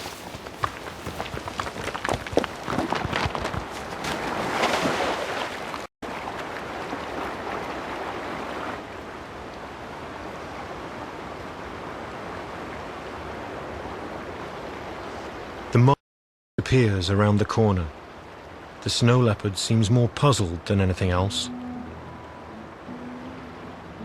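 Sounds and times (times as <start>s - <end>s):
scuffling clatter: 0.0s - 4.2s.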